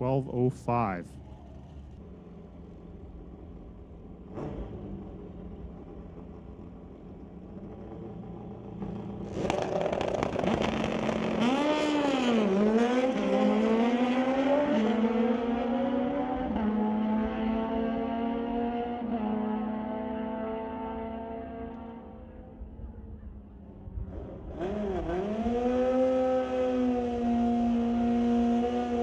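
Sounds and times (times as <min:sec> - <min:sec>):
motorcycle engine revving: 0:04.1 - 0:22.2, 0:24.0 - 0:29.0.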